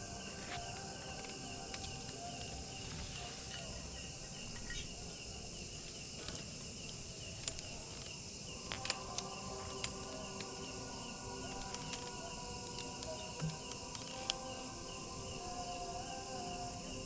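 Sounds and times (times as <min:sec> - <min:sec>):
crickets chirring: 0:00.0 - 0:17.0
sharp clicks: 0:06.2 - 0:10.7, 0:11.4 - 0:14.5.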